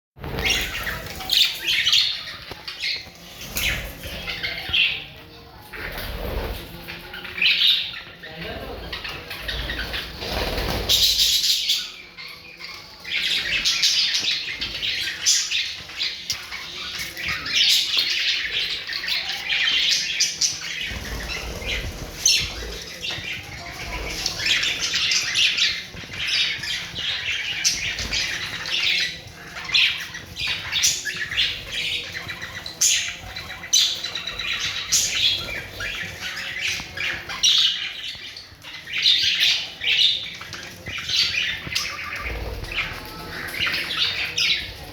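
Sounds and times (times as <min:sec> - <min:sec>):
parrots squawking: 0:00.2 - 0:05.1.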